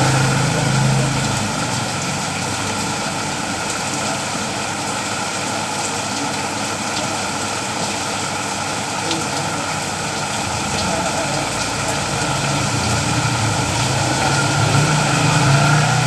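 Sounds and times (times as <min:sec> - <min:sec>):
steady rain falling: 0:00.0 - 0:16.0
low motor hum: 0:10.4 - 0:16.0.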